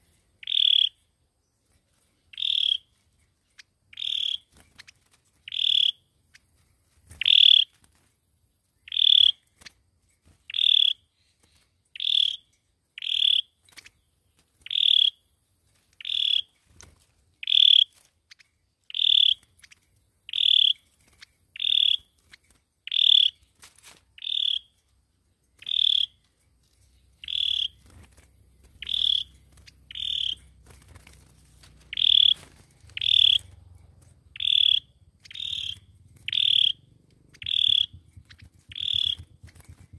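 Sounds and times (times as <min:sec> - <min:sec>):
faint low rumble: 0:26.8 - 0:39.9
songbird short high call: 0:34.4 - 0:36.8.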